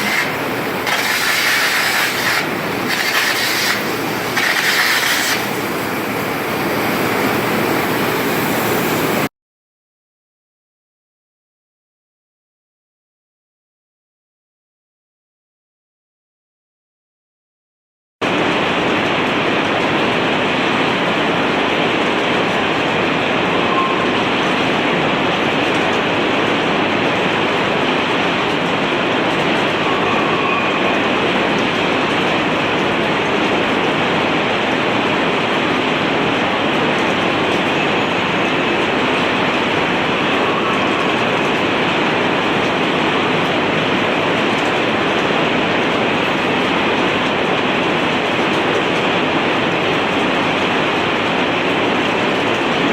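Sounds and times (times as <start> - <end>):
arc welding noise: 0.0 - 9.3.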